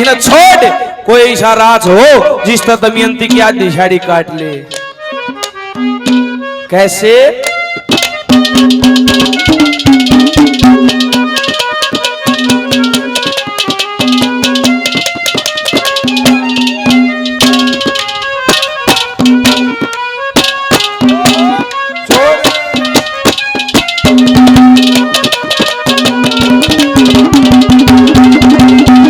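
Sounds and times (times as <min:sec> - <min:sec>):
folk melody instrument: 0:00.0 - 0:29.0
hand drum strokes: 0:04.7 - 0:06.4, 0:07.7 - 0:29.0.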